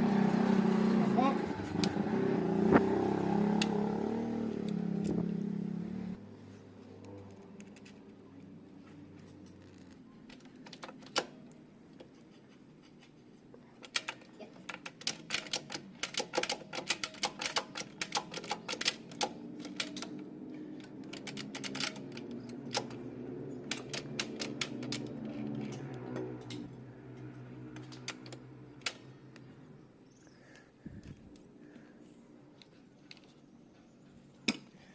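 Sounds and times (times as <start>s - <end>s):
hand tools clicking on metal: 13.8s - 29.4s.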